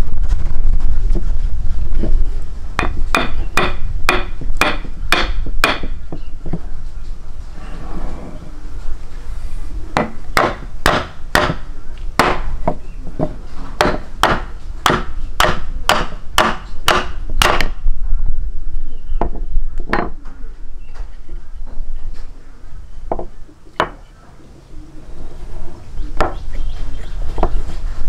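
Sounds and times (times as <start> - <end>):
sharp knocks: 2.8 - 6.2, 10.0 - 11.6, 12.2 - 17.8.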